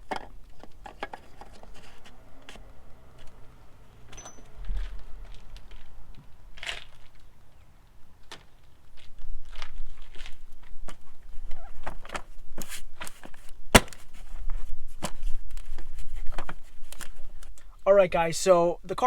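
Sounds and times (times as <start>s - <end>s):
containers knocking and clicking: 0.0s - 2.7s.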